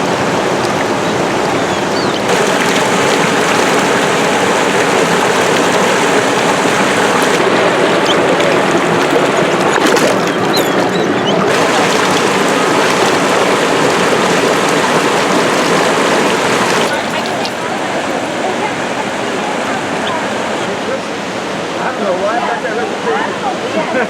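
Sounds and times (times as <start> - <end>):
water pouring over waterfall: 2.2 - 20.7.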